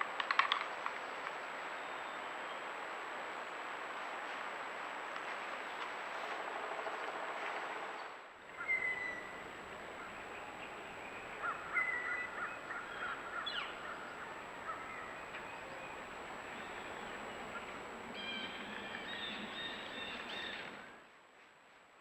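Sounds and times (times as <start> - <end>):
steady background hiss: 0.0 - 22.0
birds calling: 7.9 - 21.0.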